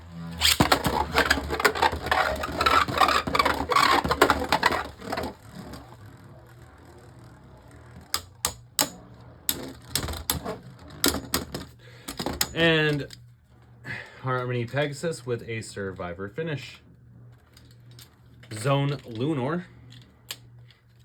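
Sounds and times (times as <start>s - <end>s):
tops spinning: 0.0s - 13.1s.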